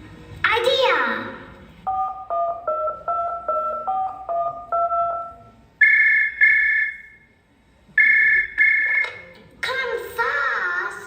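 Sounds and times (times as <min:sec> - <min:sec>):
touch-tone keypad beeps: 0:01.9 - 0:06.6
phone ringing: 0:01.9 - 0:07.0.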